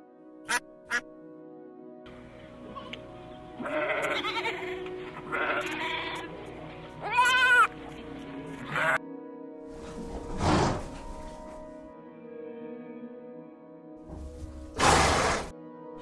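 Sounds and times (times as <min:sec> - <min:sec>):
background music: 0:00.0 - 0:16.0
sheep bleating: 0:02.1 - 0:09.0.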